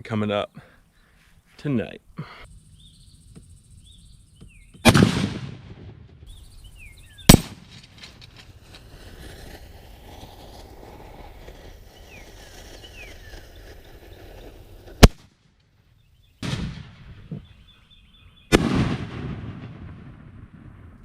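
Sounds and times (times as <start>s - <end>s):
rifle shot: 4.8s - 6.3s, 7.3s - 8.1s, 15.0s - 15.3s, 16.4s - 17.2s, 18.5s - 20.8s.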